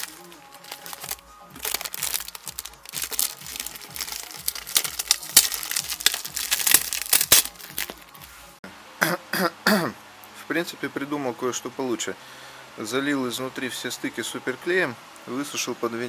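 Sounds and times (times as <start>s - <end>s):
adhesive tape tearing: 0.0s - 8.1s.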